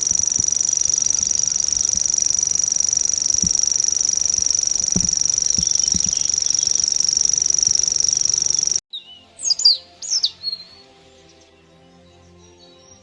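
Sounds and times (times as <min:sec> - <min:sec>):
high-pitched buzz: 0:00.0 - 0:08.8
songbird whistled chirps: 0:00.0 - 0:10.8
soft background music: 0:08.9 - 0:13.0.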